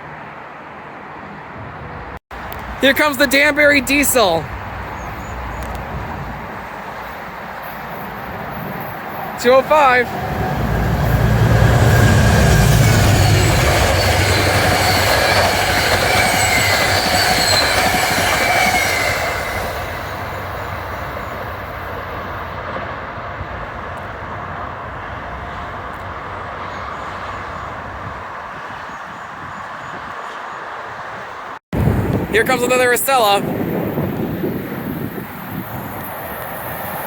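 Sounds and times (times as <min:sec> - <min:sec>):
train rolling on rails: 0:01.8 - 0:37.0
train engine rumble: 0:04.5 - 0:28.5
steel wheel squeal: 0:10.2 - 0:20.1.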